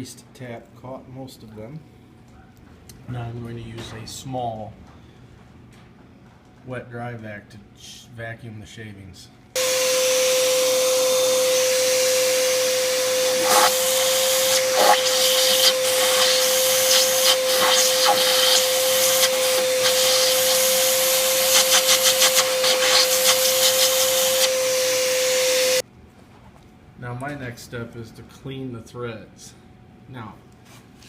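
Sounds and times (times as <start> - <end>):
shop vacuum whining: 9.6 - 25.8.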